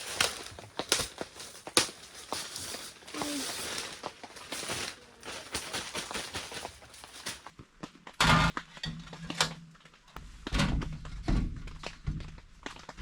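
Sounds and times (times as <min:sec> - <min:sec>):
camping gear being handled: 0:00.0 - 0:07.6.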